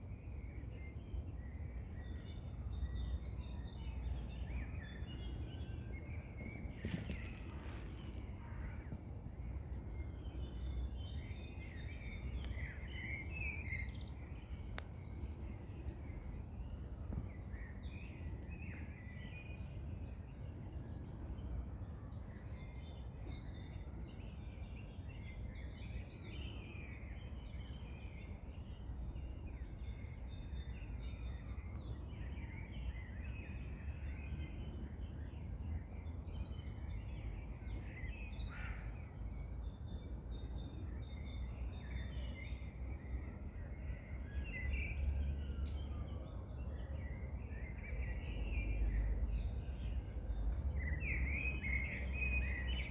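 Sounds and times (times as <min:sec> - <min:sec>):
low outdoor rumble: 0:00.0 - 0:22.3
small birds chirping and singing: 0:00.0 - 0:52.9.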